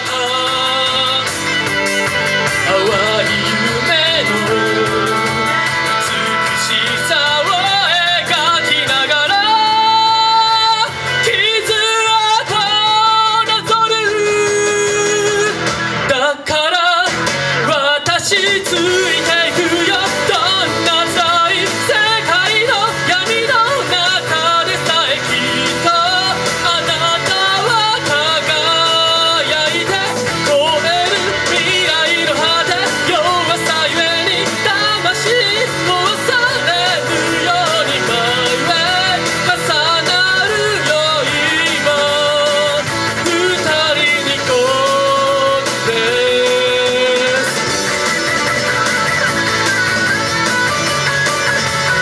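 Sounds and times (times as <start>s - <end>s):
cymbals keeping a beat: 0.0s - 13.0s
person singing with vibrato: 0.0s - 49.6s
rock band backing track: 0.0s - 52.0s.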